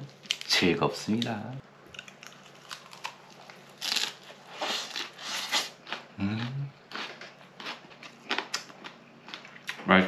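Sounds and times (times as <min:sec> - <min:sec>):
wet chewing and smacking: 0:01.9 - 0:09.8
person humming mm: 0:06.2 - 0:06.8.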